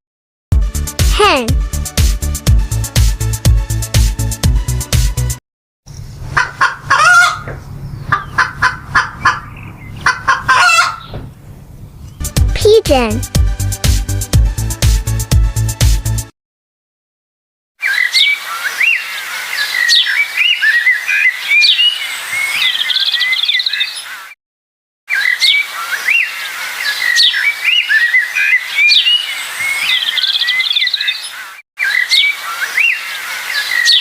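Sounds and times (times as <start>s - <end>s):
small birds chirping and whistling: 9.3s - 10.0s, 17.8s - 24.4s, 25.1s - 34.0s.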